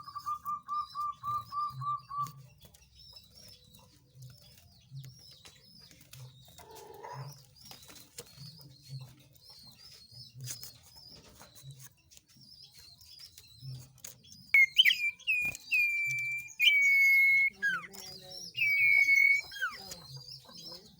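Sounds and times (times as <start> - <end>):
small songbird twittering: 0.0 - 20.9
dove cooing: 6.6 - 7.4
loud whistled bird call: 14.6 - 20.0.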